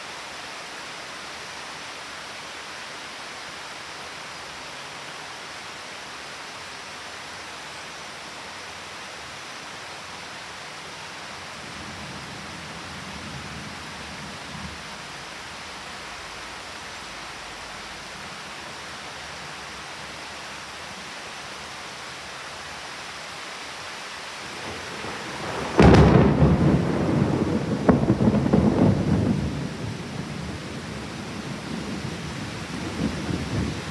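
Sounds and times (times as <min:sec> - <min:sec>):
rain hissing: 0:04.0 - 0:33.9
thunder rumbling and cracking: 0:24.5 - 0:33.9.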